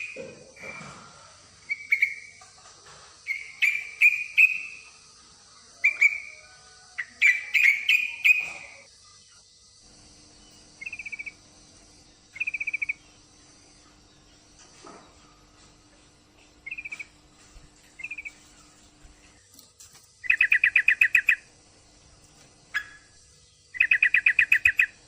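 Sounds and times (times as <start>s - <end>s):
fast rattling bird trills: 3.2s - 5.0s, 7.0s - 8.9s, 10.4s - 11.4s, 12.0s - 13.2s, 16.6s - 17.2s, 17.8s - 18.8s, 20.2s - 21.6s, 22.6s - 25.0s
steady high hiss: 8.1s - 25.0s
bulbul bubbly calls: 10.8s - 11.4s, 12.4s - 13.1s, 16.6s - 17.2s, 18.0s - 18.4s, 20.2s - 21.5s, 23.7s - 25.0s.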